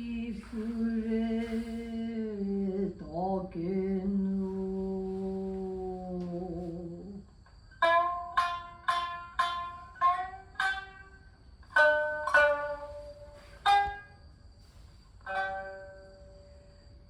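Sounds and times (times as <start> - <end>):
plucked string instrument notes: 7.8 - 16.6.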